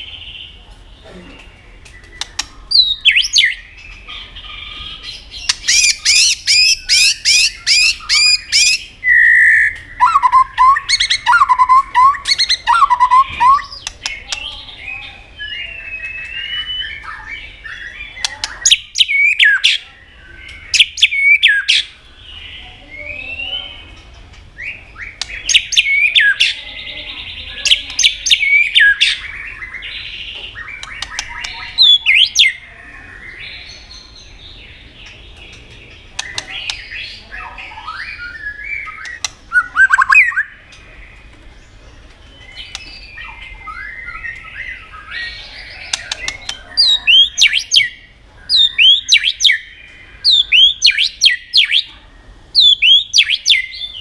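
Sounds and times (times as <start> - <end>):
songbird singing varied song: 0.0 - 54.0.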